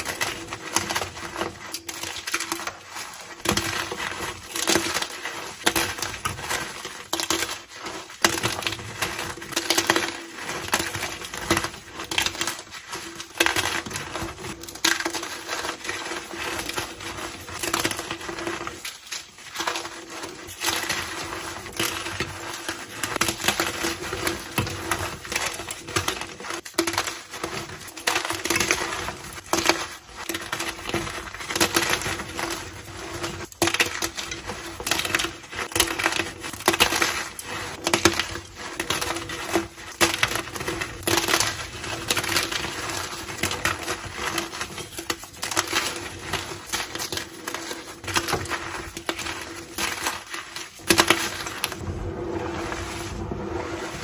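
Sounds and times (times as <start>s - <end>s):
chalk being crushed: 0.0s - 54.0s.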